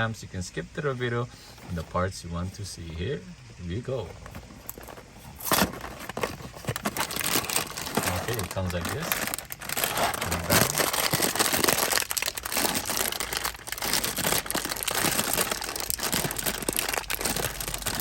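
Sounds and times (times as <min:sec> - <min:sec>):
cracker box packaging crinkling: 0:03.8 - 0:18.0.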